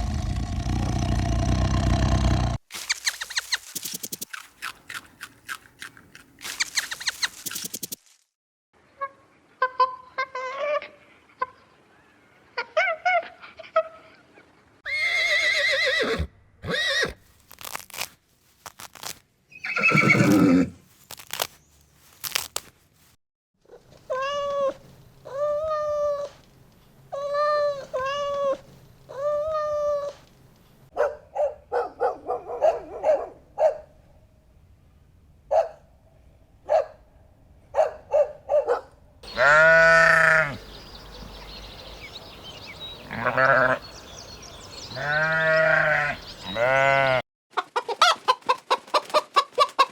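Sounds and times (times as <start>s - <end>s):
farm animal calls: 38.6s - 40.8s, 43.0s - 44.0s, 44.9s - 49.9s.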